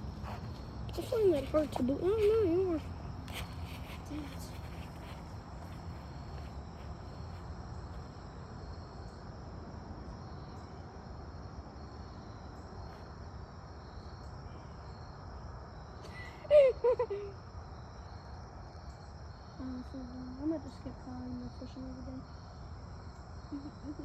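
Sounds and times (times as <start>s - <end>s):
insect chorus trilling: 0.0s - 24.0s.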